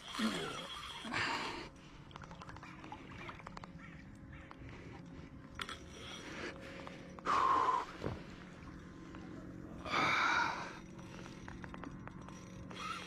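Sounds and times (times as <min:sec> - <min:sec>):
faint clicks: 0:01.9 - 0:07.4.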